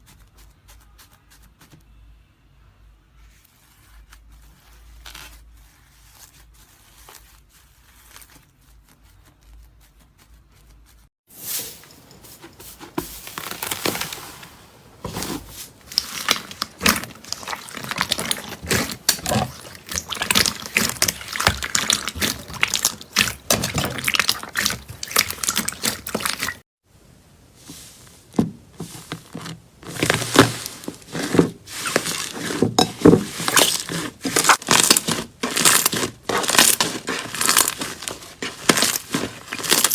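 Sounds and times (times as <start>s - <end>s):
slime crackling and popping: 15.8s - 26.6s, 29.9s - 39.9s.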